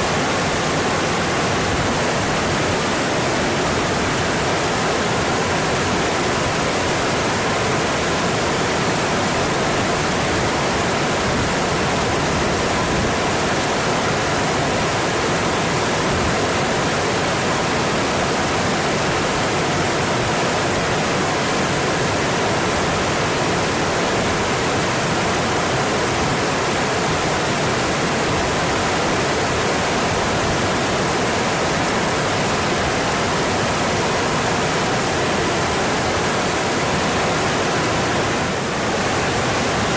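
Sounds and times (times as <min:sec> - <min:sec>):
mountain stream flowing: 0:00.0 - 0:39.9.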